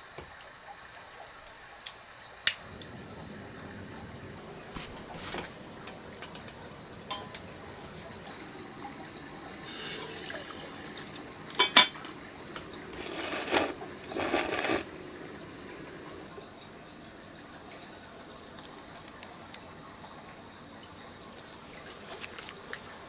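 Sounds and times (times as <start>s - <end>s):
liquid being poured: 2.6s - 16.3s
clinks of metal or glass: 7.1s - 7.4s.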